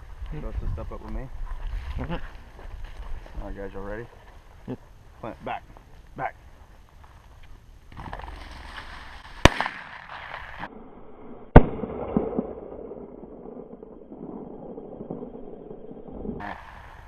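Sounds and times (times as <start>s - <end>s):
shotgun shots with echo: 9.4s - 10.5s.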